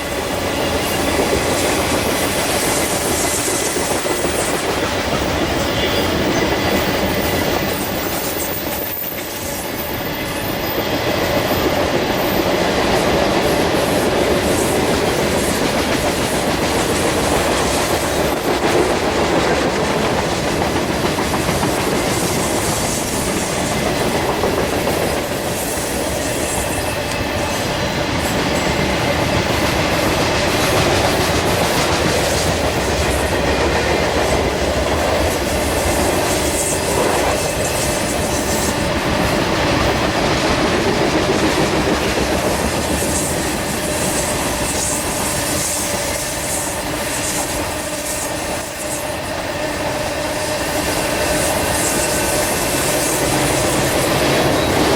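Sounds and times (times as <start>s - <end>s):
train wheels clacking over rail joints: 0.0s - 54.9s.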